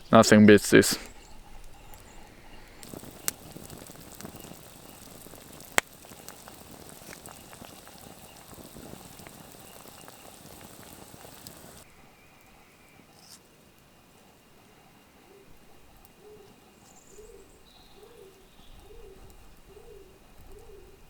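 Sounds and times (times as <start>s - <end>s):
campfire crackling: 0.0s - 21.0s
stew bubbling in a pot: 1.1s - 11.9s
sharp fire pops: 1.9s - 11.8s.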